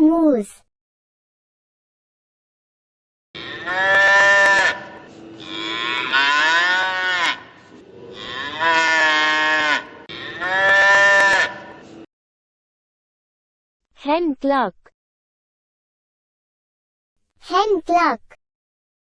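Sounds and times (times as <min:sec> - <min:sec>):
cow mooing: 0:03.4 - 0:11.8.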